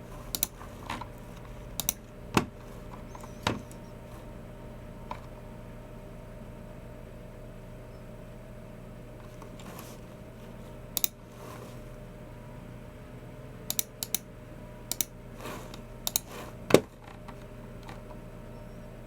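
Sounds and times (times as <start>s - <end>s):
keyboard and mouse clicks: 0.3s - 1.0s, 16.1s - 16.3s.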